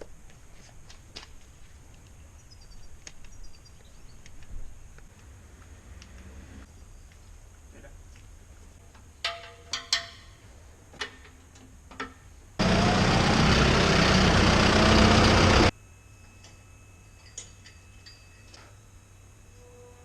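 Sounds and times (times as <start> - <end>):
tractor engine and machinery: 12.6 - 15.7.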